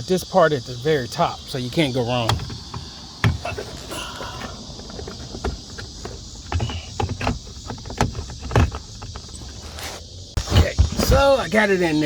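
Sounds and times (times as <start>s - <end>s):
crickets chirping: 0.0s - 12.0s
plastic parts knocking and clicking: 2.2s - 9.6s.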